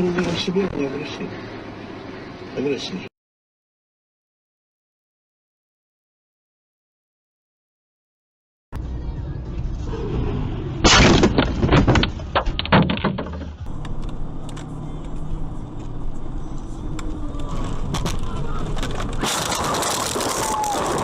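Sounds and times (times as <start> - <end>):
vehicle engine and road noise: 0.0 - 3.1, 8.8 - 21.0
car collision impact: 10.8 - 13.7
crunching hits: 10.8 - 14.2, 17.5 - 21.0.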